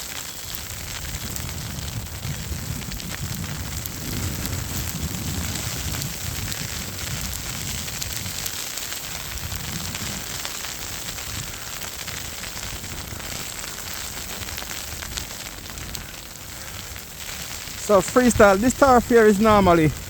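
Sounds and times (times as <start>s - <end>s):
crackling hiss: 0.0s - 20.0s
wind buffeting microphone: 0.7s - 8.5s.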